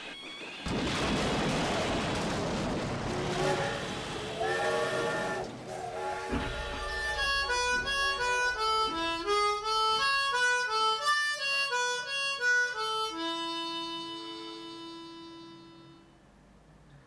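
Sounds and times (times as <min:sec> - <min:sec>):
harmonica melody: 0:03.4 - 0:16.2.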